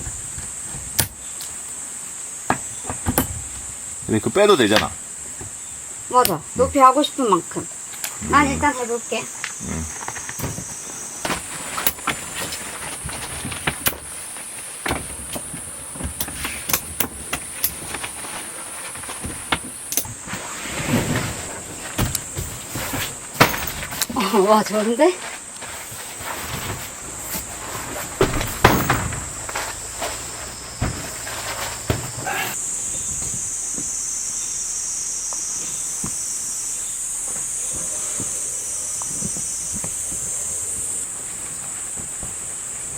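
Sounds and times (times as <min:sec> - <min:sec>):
camping gear clicking and knocking: 0:00.0 - 0:01.6, 0:09.4 - 0:20.3, 0:20.9 - 0:32.6
high insect drone: 0:00.0 - 0:42.9
steady high-pitched hiss: 0:00.0 - 0:42.9.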